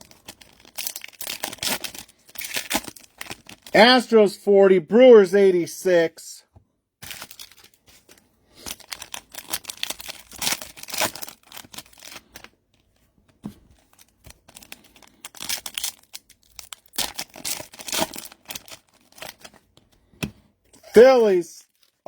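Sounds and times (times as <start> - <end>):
plastic wrapping tearing and crinkling: 0.0 - 3.7, 7.0 - 12.5, 13.8 - 19.6, 21.6 - 22.0.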